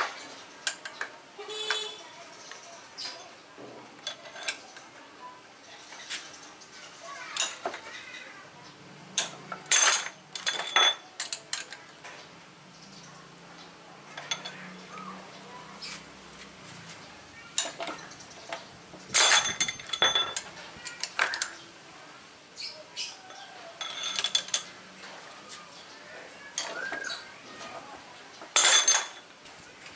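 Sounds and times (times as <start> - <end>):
metal tools clinking: 4.0 - 4.9, 7.4 - 8.2, 9.2 - 12.0, 14.1 - 14.8, 17.5 - 21.5, 23.8 - 25.4, 26.5 - 27.8, 28.4 - 29.3.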